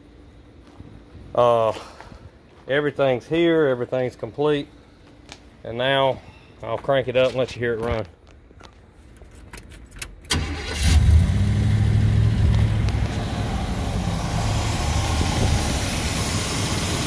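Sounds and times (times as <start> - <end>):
car engine starting and idling: 9.9 - 17.0.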